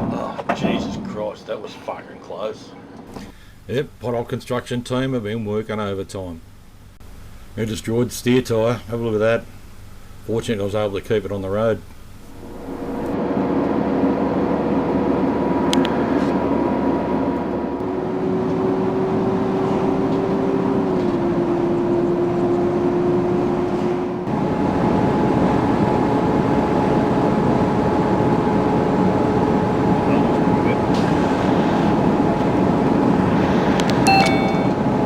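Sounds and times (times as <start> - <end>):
truck engine and road drone: 12.2 - 35.0.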